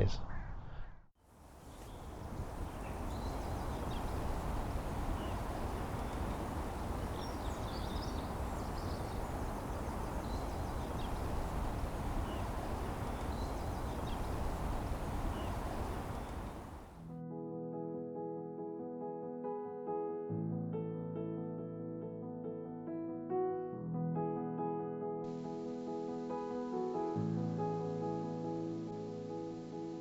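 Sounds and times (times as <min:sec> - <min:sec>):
steady hiss: 0:01.3 - 0:17.0
wind rumbling on microphone: 0:01.3 - 0:17.0
faint bird calls: 0:01.4 - 0:17.0.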